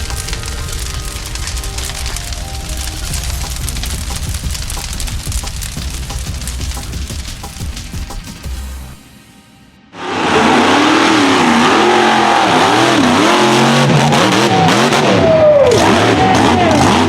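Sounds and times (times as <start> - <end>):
truck engine revving hard: 10.0 - 17.0.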